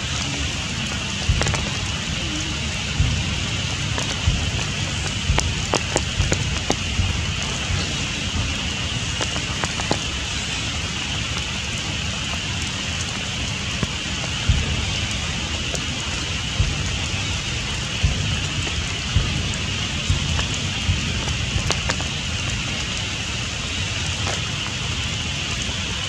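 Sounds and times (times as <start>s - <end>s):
rain falling on foliage: 0.0s - 26.0s
heavy drops knocking: 1.2s - 10.4s, 13.8s - 23.0s.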